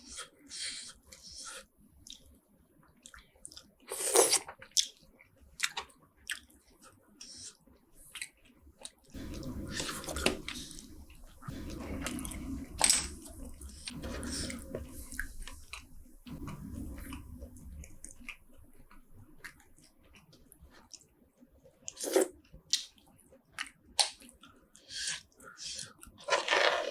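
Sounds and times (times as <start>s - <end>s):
chewing: 3.0s - 17.2s.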